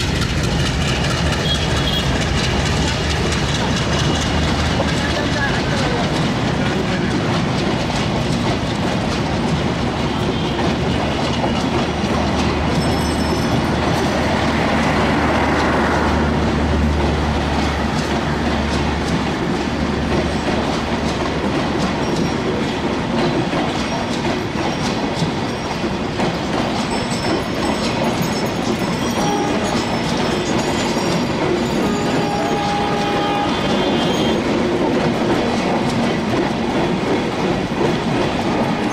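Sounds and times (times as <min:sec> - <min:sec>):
train wheels clattering over rail joints: 0:00.0 - 0:38.9.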